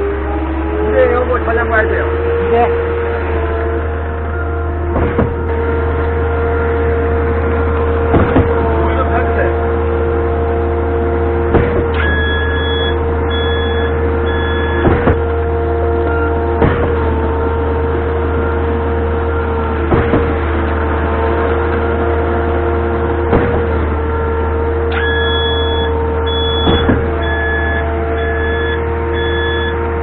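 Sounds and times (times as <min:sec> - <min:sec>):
truck engine hum with whine: 0:00.0 - 0:30.0
sharp knocks: 0:04.9 - 0:05.6, 0:08.1 - 0:08.8, 0:11.5 - 0:12.0, 0:14.3 - 0:15.4, 0:16.6 - 0:17.1, 0:19.8 - 0:20.7, 0:23.2 - 0:23.9, 0:25.8 - 0:28.6
high beeping tone: 0:12.0 - 0:14.9, 0:24.9 - 0:29.8.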